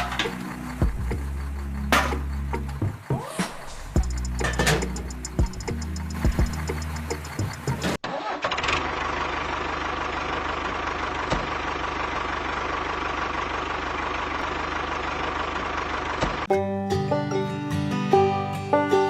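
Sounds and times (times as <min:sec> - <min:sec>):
music: 0:00.0 - 0:08.0, 0:16.5 - 0:19.0
engine idling: 0:00.0 - 0:16.5.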